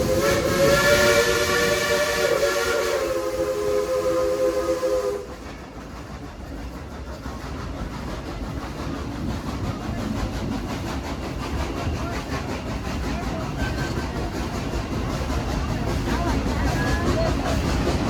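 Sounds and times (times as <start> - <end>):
steam locomotive whistle: 0.0 - 5.5
steam hiss: 0.0 - 18.0
train coach rumbling on rails: 0.0 - 18.0.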